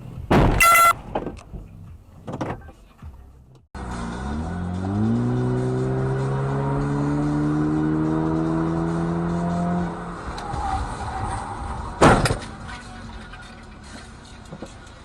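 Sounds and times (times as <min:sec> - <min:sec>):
car engine accelerating: 0:03.8 - 0:15.0.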